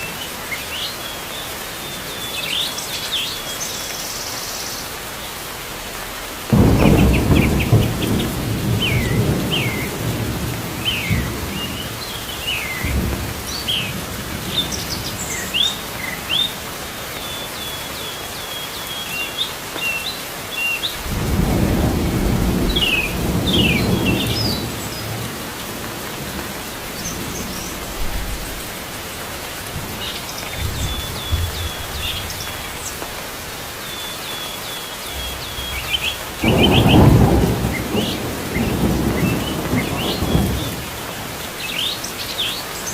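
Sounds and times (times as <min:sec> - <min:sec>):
steady rain: 0:00.0 - 0:42.9
thunder rolling: 0:06.5 - 0:16.6, 0:21.0 - 0:33.6, 0:35.2 - 0:41.4
small birds chirping: 0:06.6 - 0:42.9.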